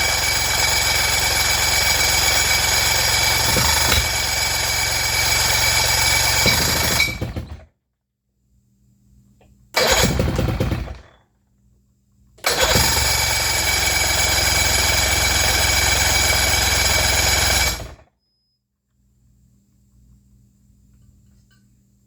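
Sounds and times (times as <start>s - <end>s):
outboard motor running: 0.0s - 7.6s, 12.5s - 18.0s.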